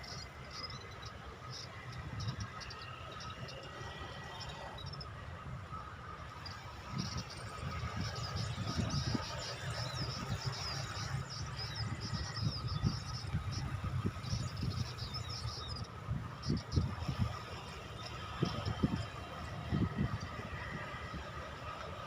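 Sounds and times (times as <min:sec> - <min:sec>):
small bird chirping: 0:06.5 - 0:16.9.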